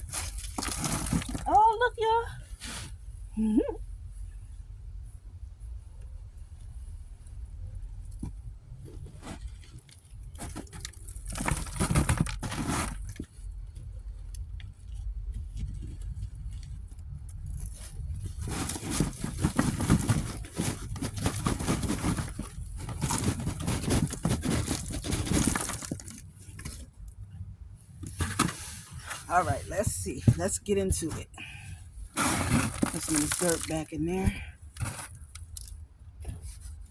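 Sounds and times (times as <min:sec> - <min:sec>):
soil and vines rustling: 0:00.0 - 0:02.8, 0:09.2 - 0:13.5, 0:17.4 - 0:27.0, 0:28.1 - 0:35.4.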